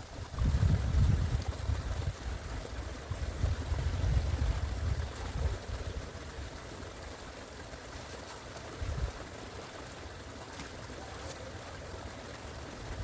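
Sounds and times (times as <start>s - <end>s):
wind buffeting microphone: 0.0s - 6.5s
stream water trickling: 0.0s - 13.0s.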